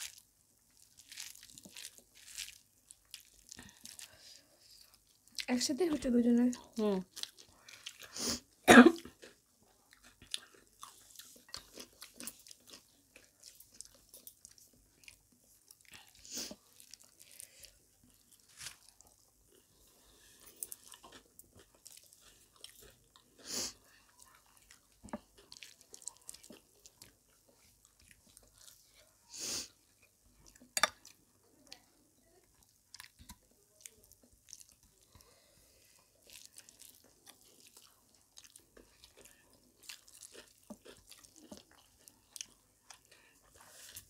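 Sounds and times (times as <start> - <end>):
chewing and lip smacking: 9.1 - 19.6, 20.5 - 29.1, 36.0 - 44.0.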